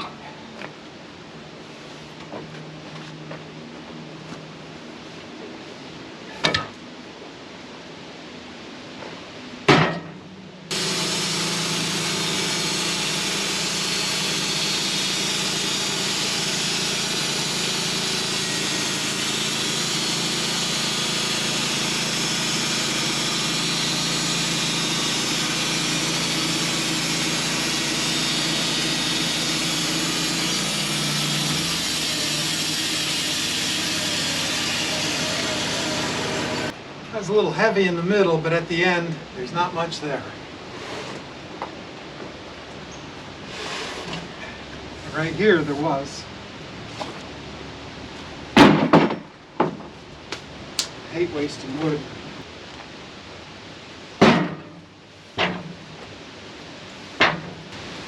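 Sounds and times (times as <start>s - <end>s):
wood and metal knocks: 9.7s - 10.2s, 48.6s - 49.9s, 54.2s - 54.8s, 55.4s - 55.8s, 57.2s - 57.6s
sawmill blade sawing log: 10.7s - 36.7s, 40.7s - 41.3s, 43.4s - 44.4s.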